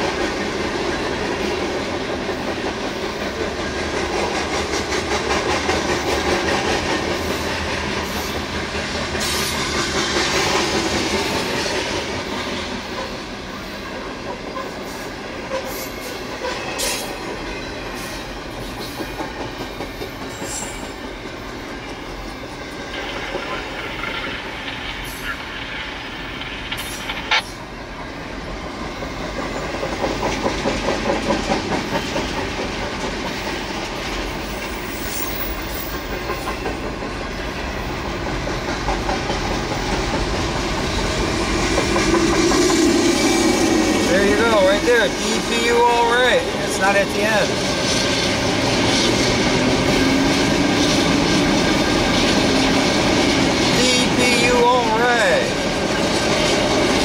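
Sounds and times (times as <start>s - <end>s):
train wheels clickety-clack: 0.0s - 57.0s
sharp click: 26.4s - 27.5s.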